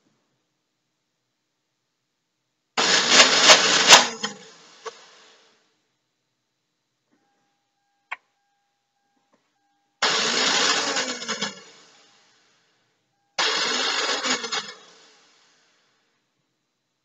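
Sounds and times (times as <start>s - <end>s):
car starter motor whirring: 10.0s - 12.1s, 13.4s - 15.4s.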